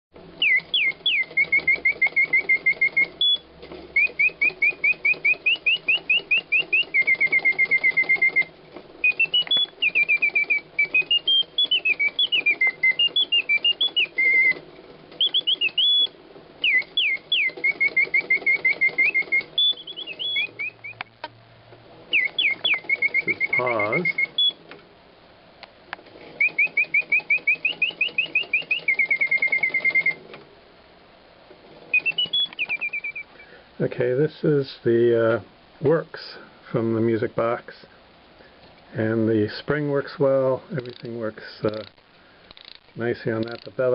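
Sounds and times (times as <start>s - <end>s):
mechanical bird whistle chirps: 0.4s - 21.1s, 22.1s - 24.6s, 26.4s - 30.2s, 31.9s - 33.6s.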